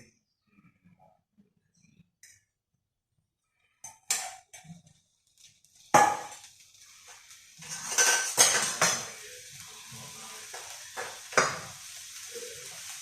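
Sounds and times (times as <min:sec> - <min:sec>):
food sizzling in hot oil: 0:05.1 - 0:13.0
cookware and utensils knocking: 0:06.0 - 0:06.4, 0:07.6 - 0:09.2, 0:10.5 - 0:11.7.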